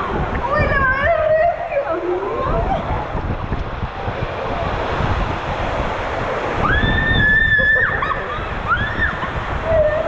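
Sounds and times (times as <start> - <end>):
rushing water: 0.0 - 10.0
wind buffeting microphone: 0.0 - 10.0
high scream: 6.6 - 9.3.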